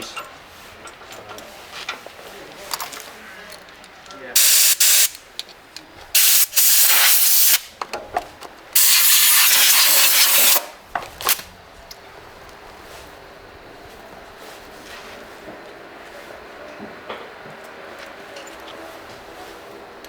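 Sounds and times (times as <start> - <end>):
pressurised gas hissing: 4.4 - 5.2, 6.1 - 7.7, 8.8 - 11.5.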